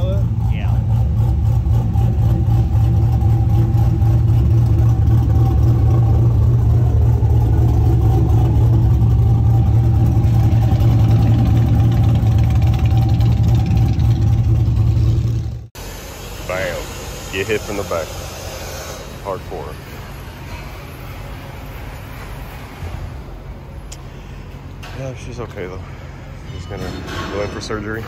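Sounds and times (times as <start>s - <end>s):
vehicle engine idling: 0.0s - 18.4s.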